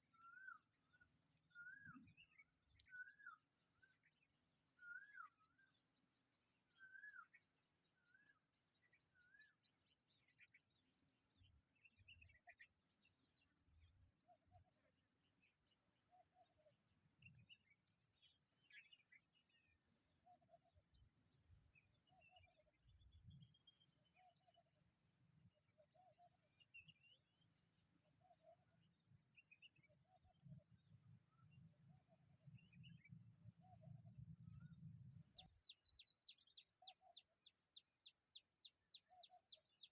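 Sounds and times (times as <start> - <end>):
bird chirps: 0.0 - 5.8, 6.4 - 24.6, 32.4 - 39.9
insect drone: 0.0 - 39.9.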